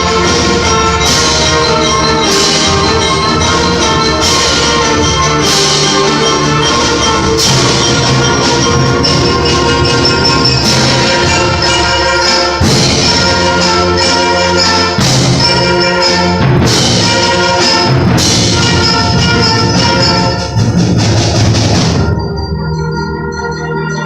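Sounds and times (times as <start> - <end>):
concert band playing loudly: 0.0 - 24.0
brass accented hits: 7.4 - 22.4.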